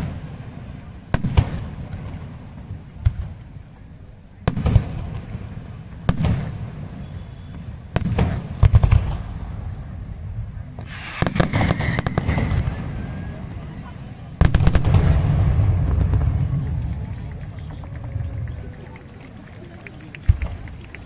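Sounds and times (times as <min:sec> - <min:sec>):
fireworks bangs: 0:00.0 - 0:21.0
low rumbling echo: 0:08.0 - 0:19.1.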